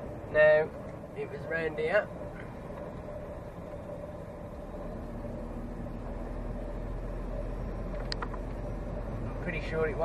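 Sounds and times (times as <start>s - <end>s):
faint steady whine: 0.0s - 10.0s
lorry engine and road drone: 0.0s - 10.0s.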